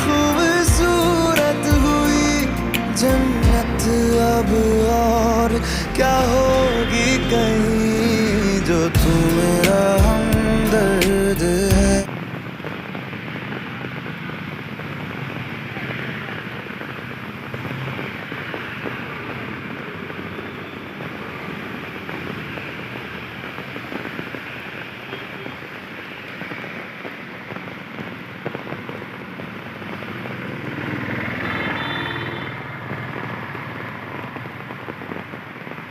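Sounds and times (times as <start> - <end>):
steady rain falling: 0.0 - 35.9.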